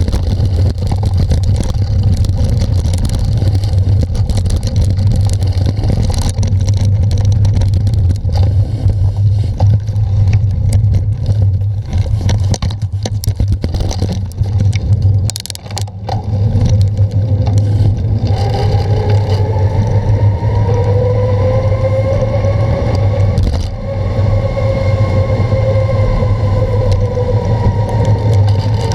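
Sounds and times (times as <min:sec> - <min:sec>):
bicycle rattling over rough ground: 0:00.0 - 0:28.9
wind rumble on microphone: 0:00.0 - 0:28.9
faint rising tones: 0:18.2 - 0:28.9.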